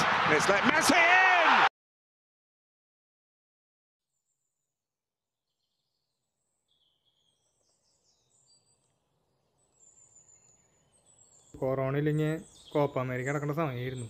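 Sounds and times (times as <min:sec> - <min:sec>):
distant birds chirping: 0:05.5 - 0:14.0.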